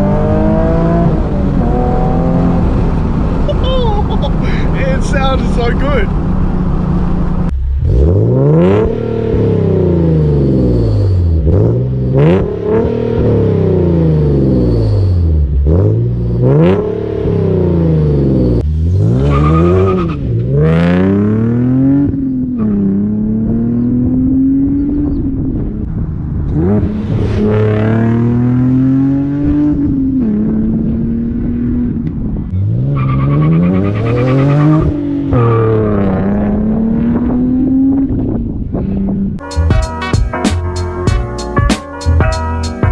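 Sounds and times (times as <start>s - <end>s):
car engine revving hard: 0.0s - 3.4s, 7.8s - 25.3s, 26.5s - 31.9s.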